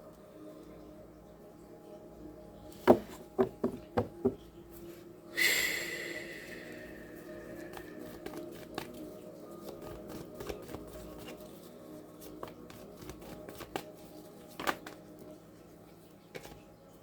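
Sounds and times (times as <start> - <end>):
faint steady hum: 0.0 - 17.0
cards being shuffled: 7.5 - 15.2, 16.3 - 16.6.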